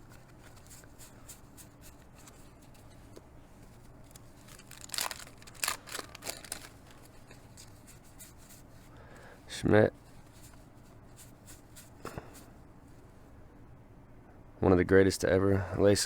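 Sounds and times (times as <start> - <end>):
card rustling: 0.0 - 8.7
cards flicking against cards: 4.1 - 7.8.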